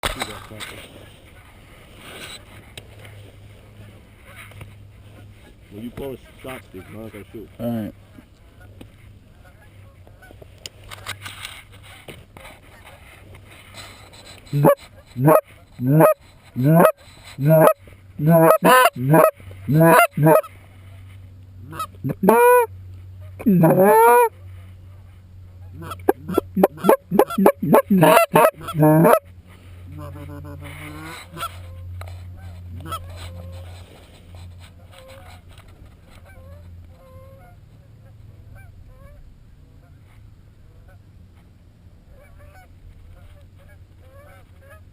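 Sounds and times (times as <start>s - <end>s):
goose call clucks and honks: 14.5s - 20.5s, 21.6s - 24.4s, 25.6s - 29.3s, 29.9s - 33.8s.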